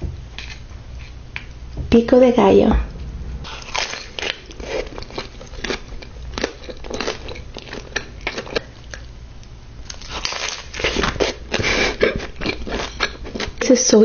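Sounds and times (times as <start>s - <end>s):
hard taco shell crunching: 3.6s - 9.1s, 9.8s - 13.6s.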